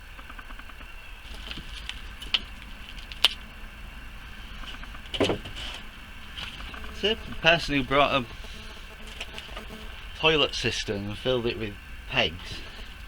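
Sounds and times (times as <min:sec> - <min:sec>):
faint scraping and rustling: 0:01.2 - 0:03.6, 0:04.2 - 0:10.2
sharp clicks: 0:08.5 - 0:09.9.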